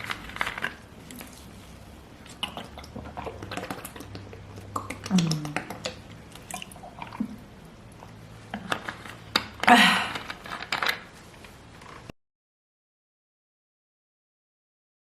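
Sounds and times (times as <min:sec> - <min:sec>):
person swallowing water: 0:02.2 - 0:08.2.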